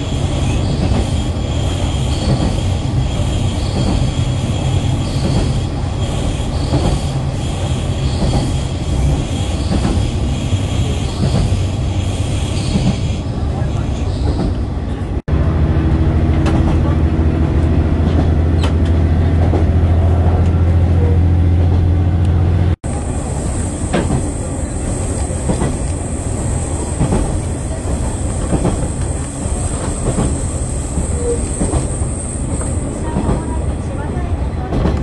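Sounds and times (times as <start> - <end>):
rail clicks: 0.0 - 15.2, 15.9 - 35.0
diesel engine drone: 15.3 - 23.3.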